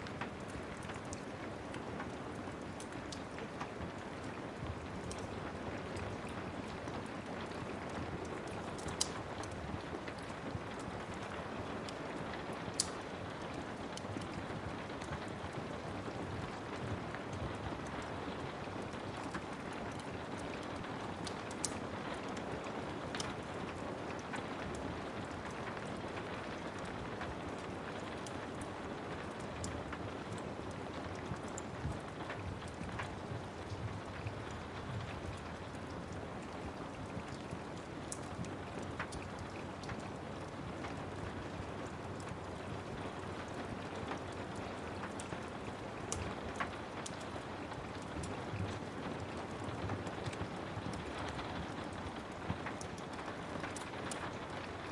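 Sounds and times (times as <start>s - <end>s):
steady rain hissing: 0.0s - 54.9s
wood fire crackling: 0.0s - 54.9s.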